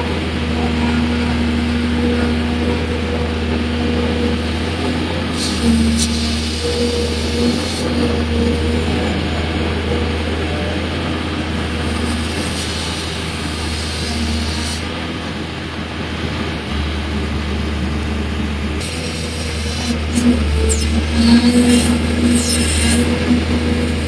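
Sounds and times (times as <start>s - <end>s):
diesel engine low rumble: 0.0s - 24.0s
steady hiss: 18.5s - 24.0s.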